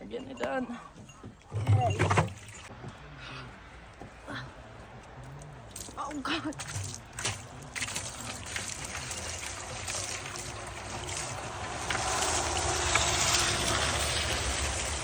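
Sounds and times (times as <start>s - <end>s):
water pouring and splashing: 1.6s - 2.7s, 5.8s - 15.0s.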